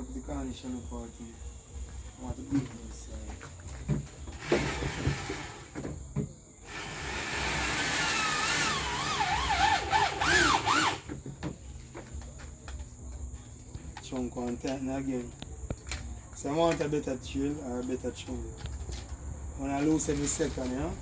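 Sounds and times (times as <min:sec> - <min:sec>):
electric drill whining: 0:04.4 - 0:05.8, 0:06.6 - 0:11.1.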